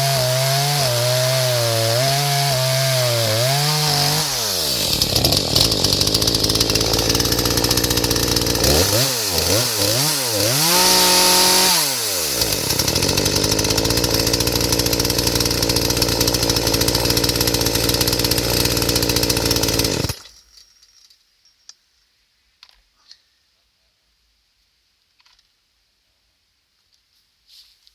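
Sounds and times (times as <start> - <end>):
chainsaw engine revving: 0.0 - 20.3.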